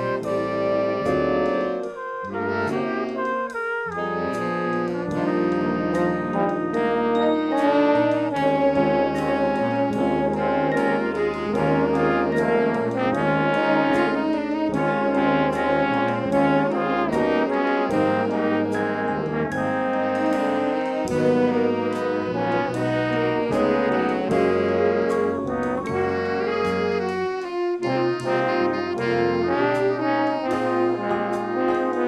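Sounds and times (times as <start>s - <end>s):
brass band playing: 0.0s - 32.0s
steady drum beat: 0.0s - 32.0s.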